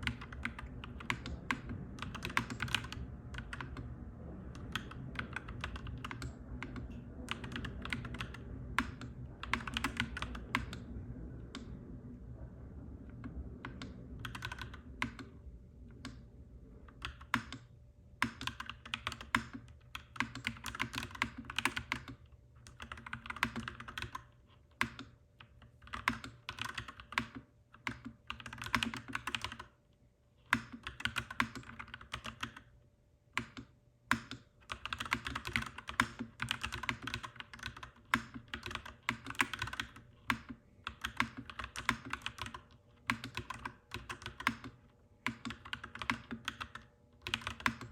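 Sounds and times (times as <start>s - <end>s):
mechanical keyboard typing: 0.0s - 3.9s, 4.5s - 10.9s, 13.1s - 15.3s, 16.9s - 29.8s, 30.5s - 32.7s, 33.4s - 47.9s
faint low hum: 0.0s - 47.9s.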